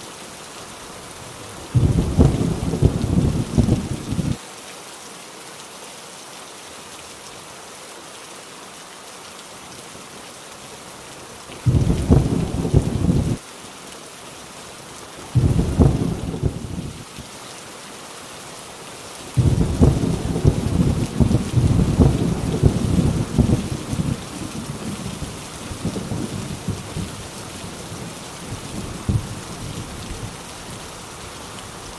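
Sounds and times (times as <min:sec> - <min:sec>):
heavy rain on a tin roof: 0:00.0 - 0:31.9
thunder rumbling: 0:01.7 - 0:04.4, 0:11.7 - 0:13.4, 0:15.4 - 0:17.1, 0:19.4 - 0:30.4.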